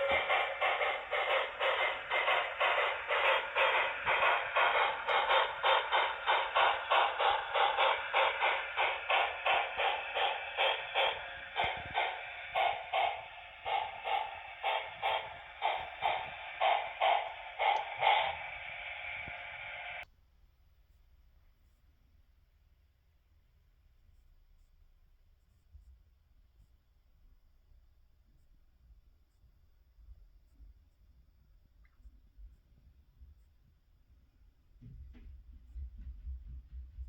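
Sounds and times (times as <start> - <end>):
model steam locomotive chuffs: 0.0 - 20.0
steady steam hiss: 0.0 - 20.0.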